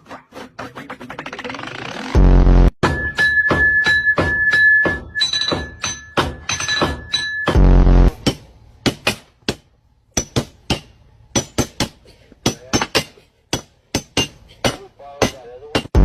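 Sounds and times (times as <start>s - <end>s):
sharp taps with ringing: 2.8s - 7.6s.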